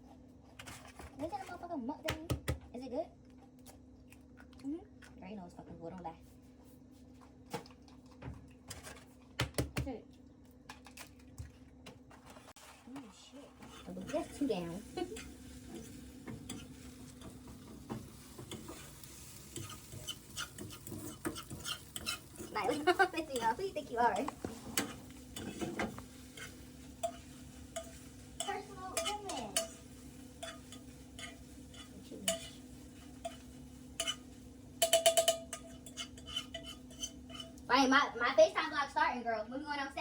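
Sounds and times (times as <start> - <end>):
utensil clicking on cookware: 27.8 - 29.8, 30.4 - 32.6, 34.0 - 34.2, 34.8 - 37.6.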